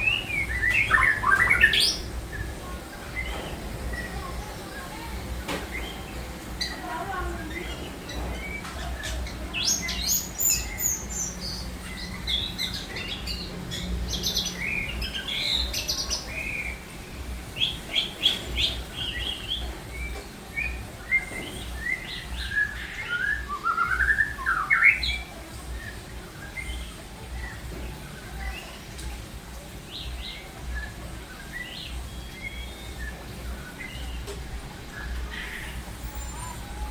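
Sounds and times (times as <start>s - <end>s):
bird chirping and calling: 0.0s - 36.9s.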